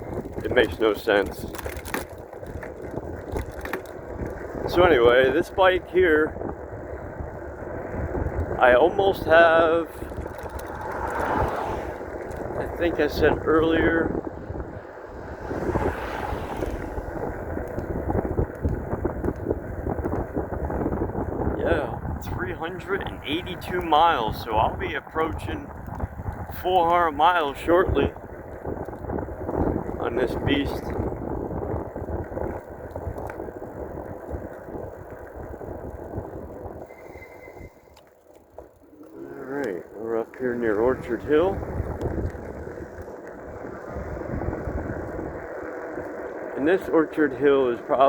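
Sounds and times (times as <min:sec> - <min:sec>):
electric bike road noise: 0:00.0 - 0:48.0
wind buffeting microphone: 0:00.0 - 0:48.0
faint thin high tone: 0:36.9 - 0:38.0.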